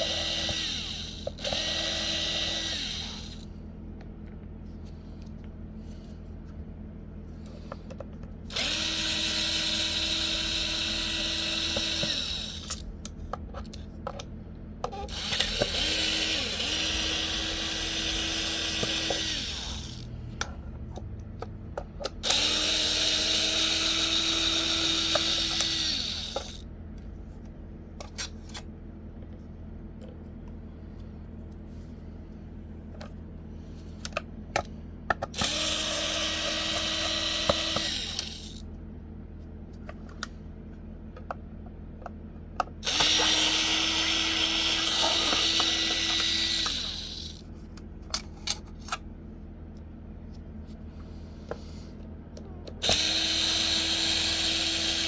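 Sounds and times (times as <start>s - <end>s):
electric power tool whining: 0.0s - 3.6s, 8.5s - 12.8s, 14.8s - 20.2s, 22.1s - 26.6s, 35.3s - 38.6s, 42.8s - 47.4s, 52.8s - 55.0s.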